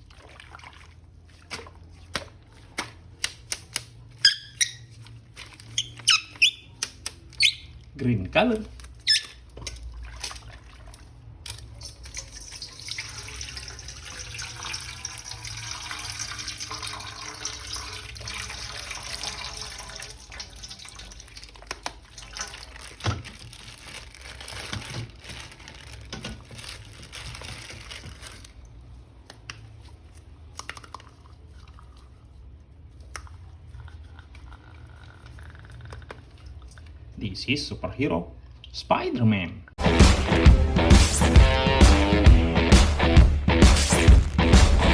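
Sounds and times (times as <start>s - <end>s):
tap water running and splashing: 0.0s - 2.9s, 9.2s - 28.7s.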